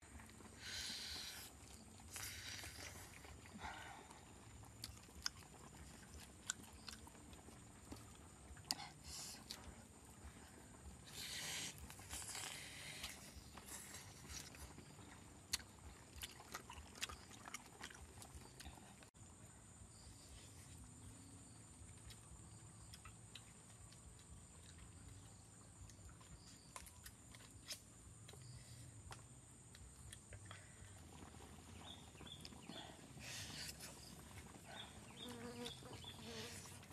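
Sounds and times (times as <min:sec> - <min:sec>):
chewing and biting ribs: 0:00.1 - 0:19.1.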